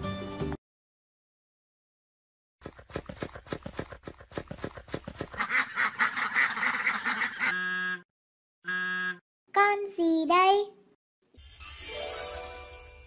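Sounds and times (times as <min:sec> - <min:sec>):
ducks quacking: 0:05.3 - 0:08.0.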